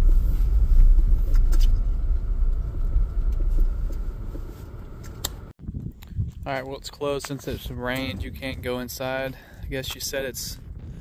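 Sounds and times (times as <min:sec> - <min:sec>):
car driving rumble: 0:00.0 - 0:05.6.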